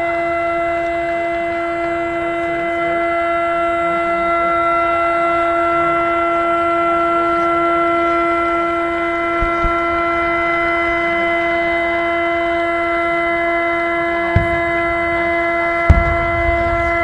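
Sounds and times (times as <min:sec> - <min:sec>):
steady horn-like tone: 0:10.0 - 0:17.0
low thumps: 0:14.4 - 0:17.0.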